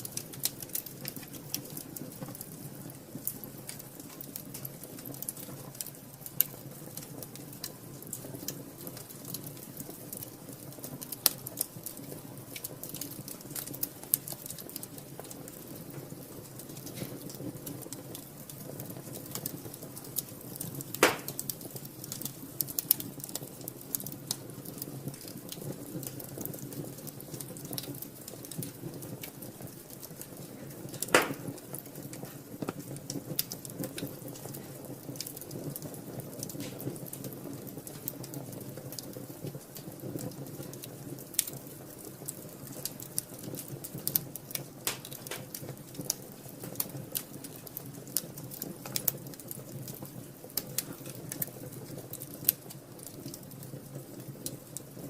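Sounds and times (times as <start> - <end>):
loud fire pops: 0.0 - 55.0
wood fire crackling: 0.0 - 55.0.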